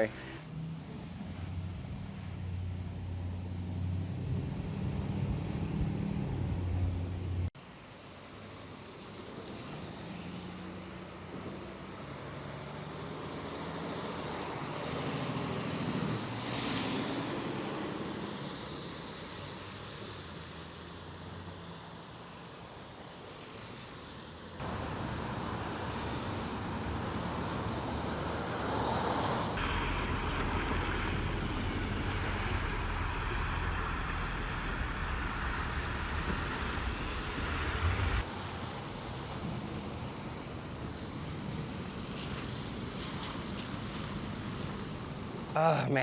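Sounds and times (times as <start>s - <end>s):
passing traffic: 0.0s - 46.0s
wind rumbling on microphone: 26.4s - 40.4s.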